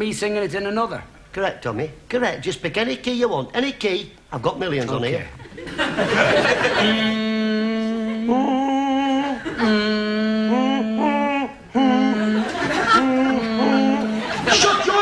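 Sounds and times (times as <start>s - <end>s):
person humming long notes: 6.6s - 14.5s.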